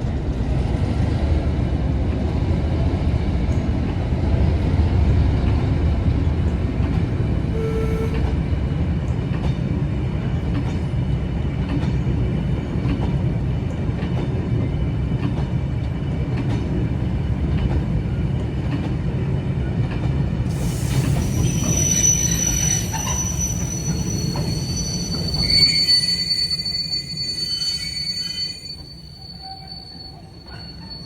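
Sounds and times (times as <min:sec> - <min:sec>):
train rumbling: 0:00.0 - 0:31.0
wheels squealing against rails: 0:07.4 - 0:08.4, 0:20.5 - 0:31.0.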